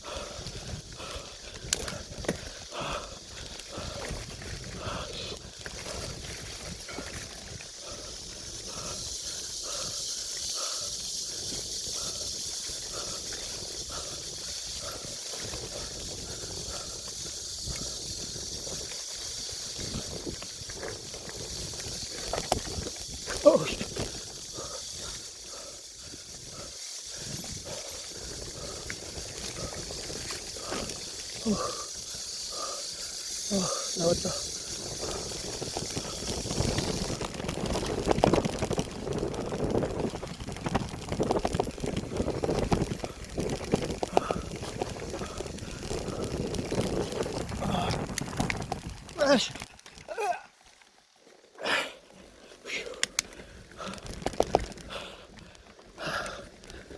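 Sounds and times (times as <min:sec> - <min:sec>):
high-pitched hiss: 0:00.0 - 0:37.2
wind on microphone: 0:00.0 - 0:50.3
bike knocking and rattling: 0:00.0 - 0:51.0, 0:52.5 - 0:56.9
bike tyre noise on trail: 0:00.0 - 0:56.9.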